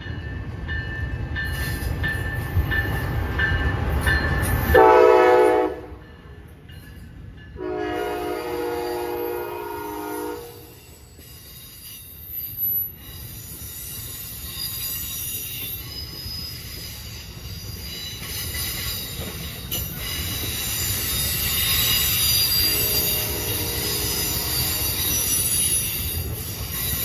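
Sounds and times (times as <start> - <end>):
train wheels rumbling: 0.0 - 27.0
train chime horn: 4.6 - 6.4, 7.5 - 11.1, 22.0 - 26.0
high-pitched wheel squeal: 10.7 - 27.0.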